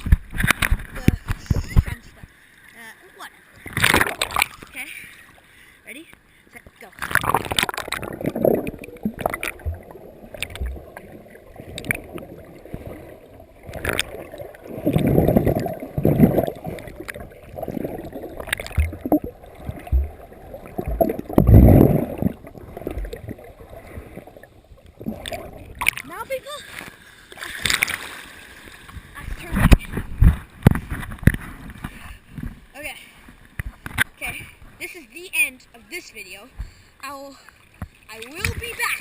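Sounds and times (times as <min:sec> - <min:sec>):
water splashing and sloshing: 0:00.0 - 0:39.0
low thumps: 0:13.7 - 0:23.4.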